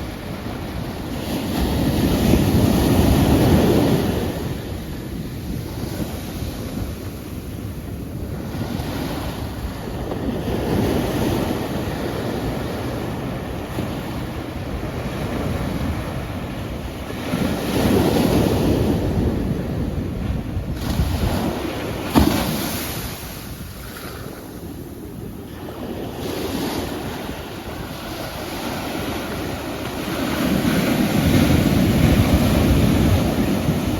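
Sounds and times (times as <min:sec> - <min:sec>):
sea waves washing onto shore: 0:18.7 - 0:33.9.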